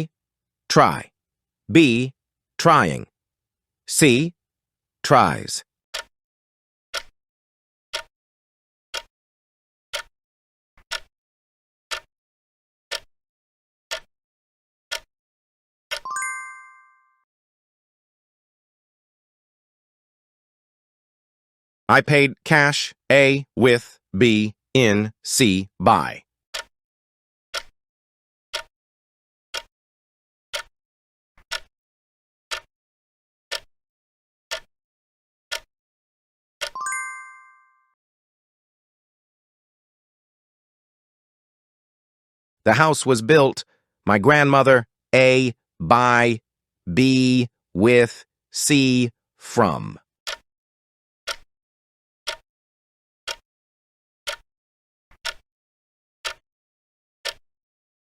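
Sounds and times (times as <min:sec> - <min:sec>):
clock ticking: 0:06.9 - 0:07.1, 0:07.9 - 0:08.1, 0:08.9 - 0:09.1, 0:09.9 - 0:10.1, 0:10.8 - 0:11.1, 0:22.0 - 0:26.7, 0:27.5 - 0:27.7, 0:28.5 - 0:28.7, 0:29.5 - 0:29.7, 0:30.5 - 0:30.7, 0:31.4 - 0:31.7, 0:36.6 - 0:37.0, 0:44.2 - 0:46.4, 0:47.0 - 0:48.0, 0:48.6 - 0:50.4, 0:51.3 - 0:51.5, 0:55.1 - 0:55.4, 0:56.2 - 0:56.4
bright multi-tone chime: 0:16.1 - 0:17.2, 0:36.8 - 0:37.9.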